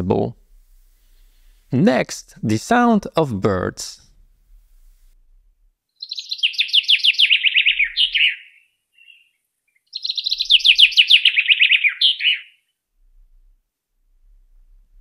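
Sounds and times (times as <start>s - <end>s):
birdsong: 5.9s - 12.7s.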